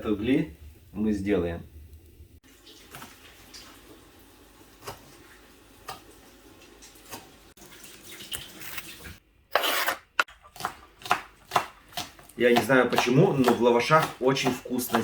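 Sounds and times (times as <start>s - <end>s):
wood fire hissing and crackling: 0.0s - 7.6s.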